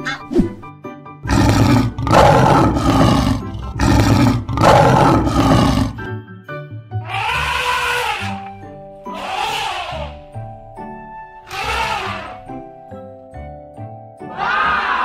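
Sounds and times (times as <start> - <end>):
children's background music: 0.0 - 15.0
lion roaring: 1.2 - 6.1.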